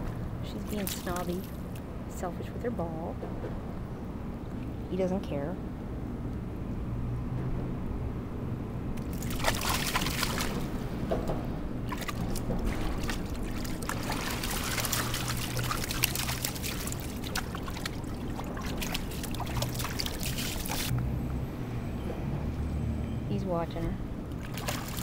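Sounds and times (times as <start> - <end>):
water splashing and trickling: 0.0 - 2.3, 9.0 - 21.4, 23.4 - 25.0
steady low hum: 0.0 - 22.5.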